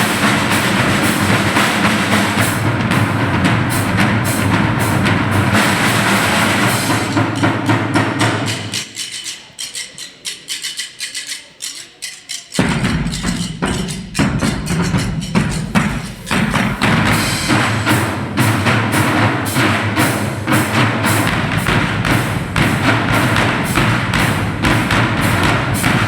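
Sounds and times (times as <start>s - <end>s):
drums playing loud rhythm: 0.0s - 26.0s
sharp clicks of sticks: 7.1s - 17.3s.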